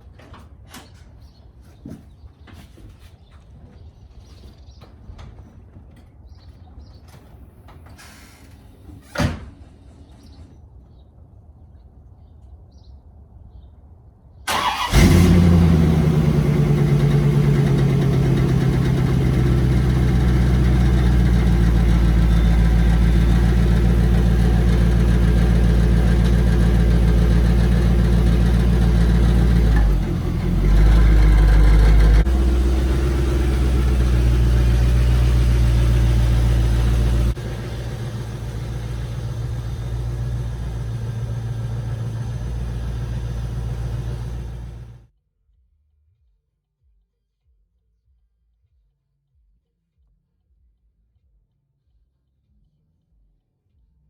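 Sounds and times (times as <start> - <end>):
car engine cranking and idling: 14.5 - 45.0.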